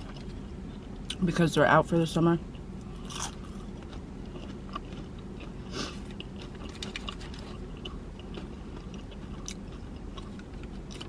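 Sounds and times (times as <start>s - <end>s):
steady low hum: 0.0s - 11.0s
person chewing: 2.5s - 11.0s
crunchy bites: 2.8s - 11.0s.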